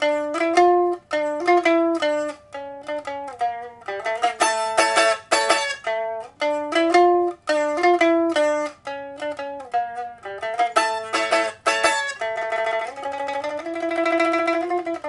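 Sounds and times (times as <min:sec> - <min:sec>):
plucked lute melody: 0:00.0 - 0:15.0.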